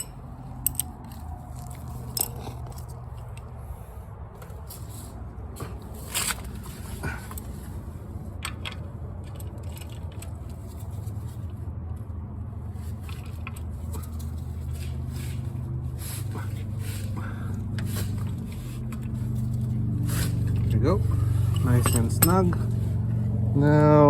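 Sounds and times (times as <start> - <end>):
hand tool clicking and scraping: 0.0 - 3.6, 4.4 - 11.6, 12.9 - 23.2
steady low hum: 0.0 - 24.0.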